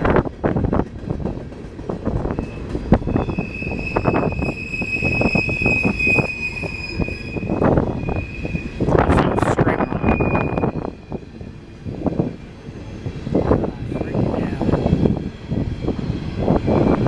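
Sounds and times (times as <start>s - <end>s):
train cars clanking over rails: 0.0s - 17.0s
high-pitched wheel squeal: 2.4s - 8.9s, 9.8s - 11.2s.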